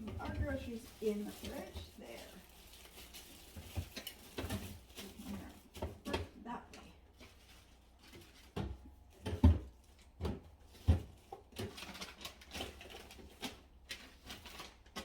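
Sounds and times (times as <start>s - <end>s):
plastic rustling: 0.0s - 15.0s
packages knocking on shelves: 8.4s - 12.0s.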